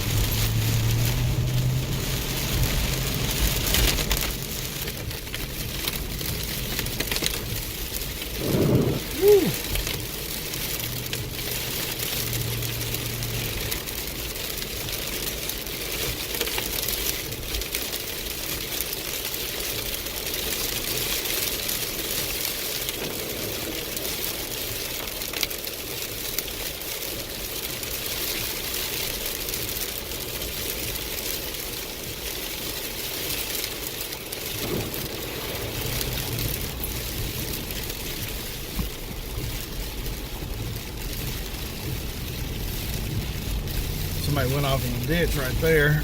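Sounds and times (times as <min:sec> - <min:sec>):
low engine hum: 0:00.0 - 0:16.0, 0:34.4 - 0:46.0
rain and tyres on wet road: 0:00.0 - 0:46.0.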